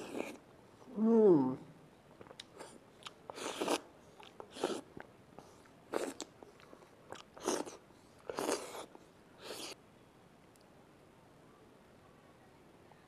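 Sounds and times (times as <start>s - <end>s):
person chewing fruit: 0.0s - 0.4s, 2.2s - 9.8s.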